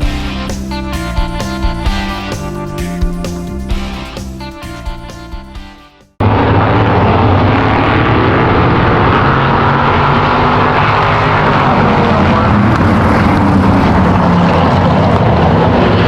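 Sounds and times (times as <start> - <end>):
racing car engines: 6.2 - 16.0.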